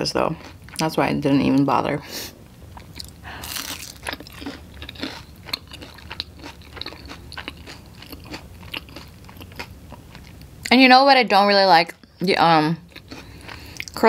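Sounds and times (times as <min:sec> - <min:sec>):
crunchy chewing: 0:02.8 - 0:10.5, 0:12.9 - 0:14.0.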